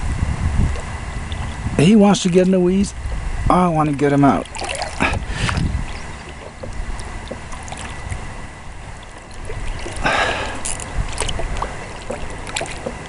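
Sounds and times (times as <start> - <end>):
water sloshing and splashing: 3.6 - 13.0.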